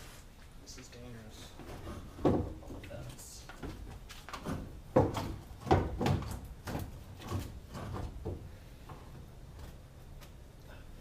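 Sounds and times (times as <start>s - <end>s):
heavy metal clunks and scraping: 1.6s - 2.9s, 3.6s - 9.8s
metal knocks: 3.7s - 8.4s.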